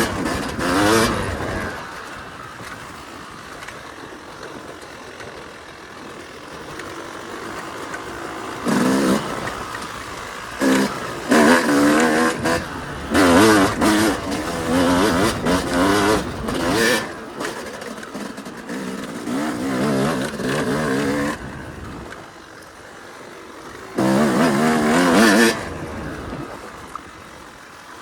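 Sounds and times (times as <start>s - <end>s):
dirt bike engine revving: 0.0s - 5.0s, 5.6s - 22.5s, 23.6s - 27.8s.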